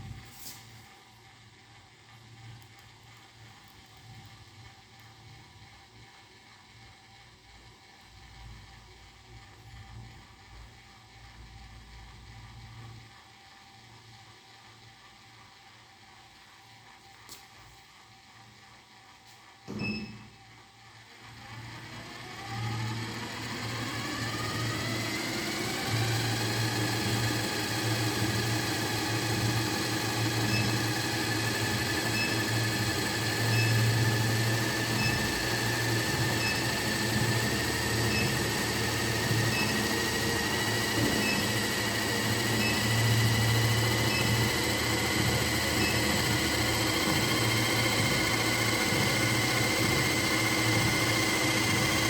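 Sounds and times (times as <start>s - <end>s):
electric motor whine: 21.5s - 52.0s.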